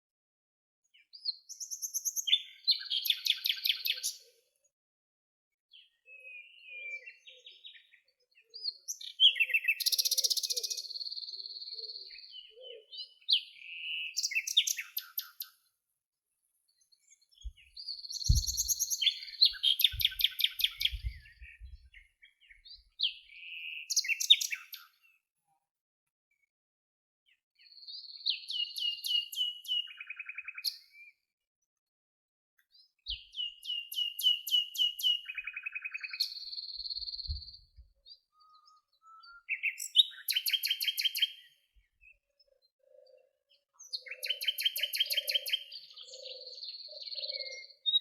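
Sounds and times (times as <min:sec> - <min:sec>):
songbirds chirping and trilling: 0:00.8 - 0:04.8, 0:05.7 - 0:25.4, 0:27.2 - 0:31.4, 0:32.6 - 0:48.0
low thuds: 0:18.3 - 0:18.7.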